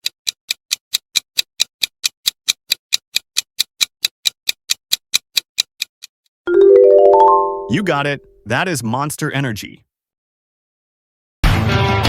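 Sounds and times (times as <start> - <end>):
countdown timer ticking: 6.5 - 8.6.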